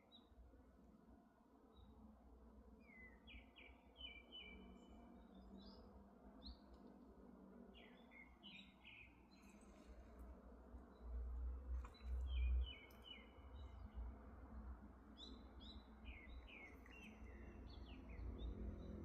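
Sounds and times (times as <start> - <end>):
small songbird chirping: 7.8 - 9.9, 11.8 - 14.1, 15.1 - 19.0.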